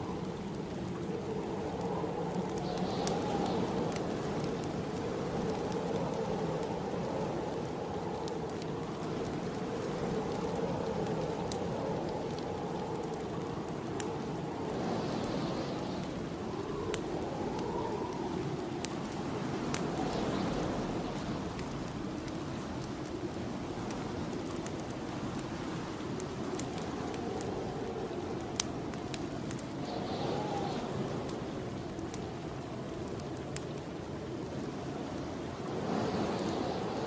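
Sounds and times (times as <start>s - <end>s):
wind gusting: 0.0s - 37.0s
wood fire crackling: 0.0s - 37.0s.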